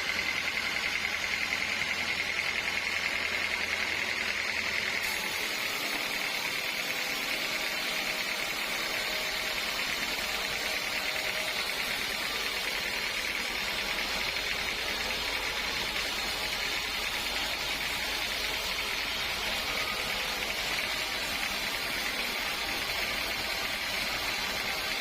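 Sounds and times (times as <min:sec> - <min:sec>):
sawmill saw whining hiss: 0:00.0 - 0:25.0.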